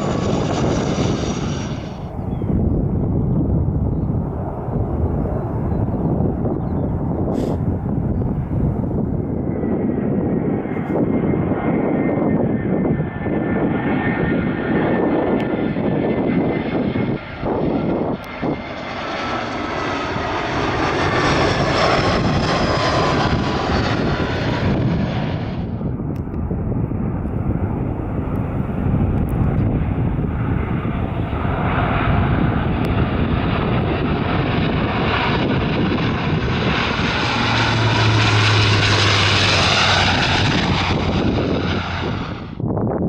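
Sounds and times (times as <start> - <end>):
jet airliner passing: 0.0 - 43.0
wind buffeting microphone: 0.0 - 43.0.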